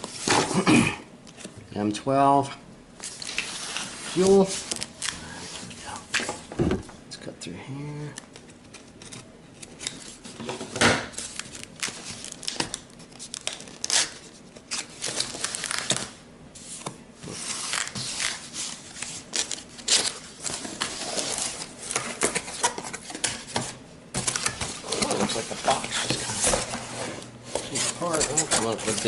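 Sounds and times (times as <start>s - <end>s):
cardboard ripping and crinkling: 17.3s - 23.0s, 24.2s - 29.0s.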